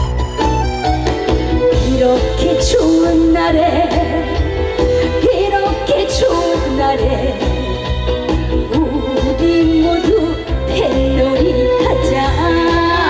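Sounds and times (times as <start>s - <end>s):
live band playing: 0.0s - 13.0s
person singing: 1.7s - 13.0s.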